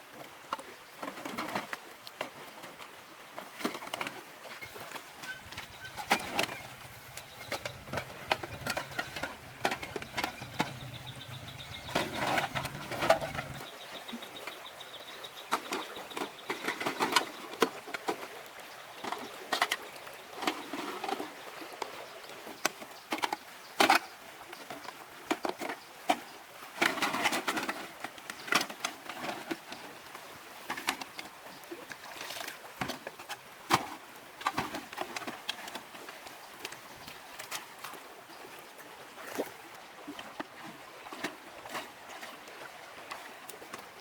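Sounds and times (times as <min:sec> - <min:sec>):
rustling and scraping: 0:03.5 - 0:13.7
objects clicking and knocking: 0:03.6 - 0:13.7.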